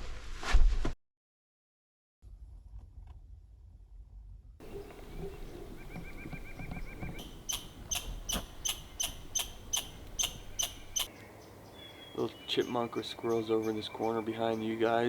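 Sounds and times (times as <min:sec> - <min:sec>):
squirrel trilling: 0:04.6 - 0:11.2
squirrel chirping: 0:04.6 - 0:14.8.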